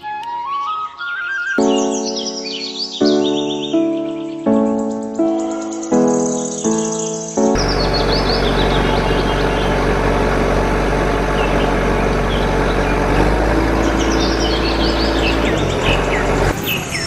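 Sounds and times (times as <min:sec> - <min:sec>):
birds chirping: 0:00.0 - 0:17.0
motor humming: 0:07.6 - 0:16.6.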